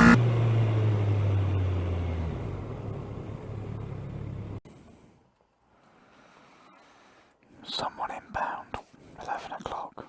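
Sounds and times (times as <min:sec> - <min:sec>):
motorcycle engine running: 0:00.0 - 0:04.6.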